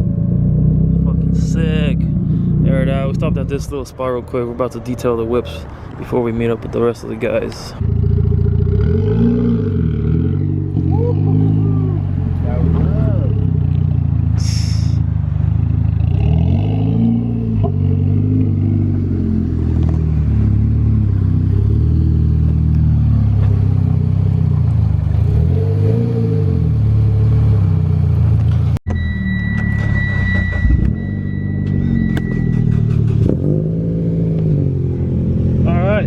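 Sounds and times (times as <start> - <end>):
steady high beep: 28.9 - 32.9.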